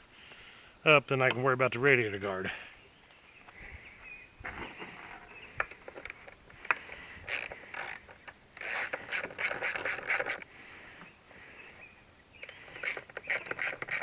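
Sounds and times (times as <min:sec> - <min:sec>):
metal bolts and tools rattling: 0:05.7 - 0:10.4, 0:12.4 - 0:14.0.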